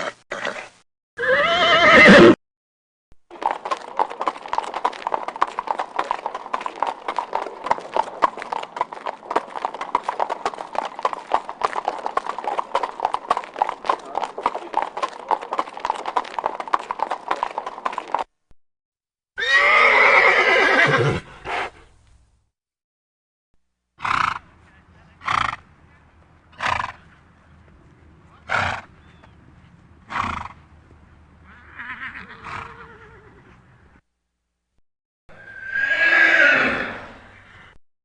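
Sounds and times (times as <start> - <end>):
horse neighing: 0.0 - 2.4, 19.4 - 21.3, 31.4 - 33.5, 35.3 - 37.7
horse hooves clip-clopping: 3.3 - 18.3.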